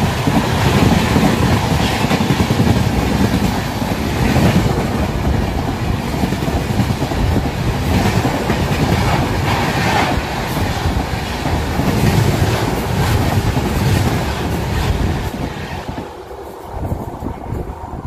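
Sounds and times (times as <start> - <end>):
train wheels clacking on rails: 0.0 - 18.0.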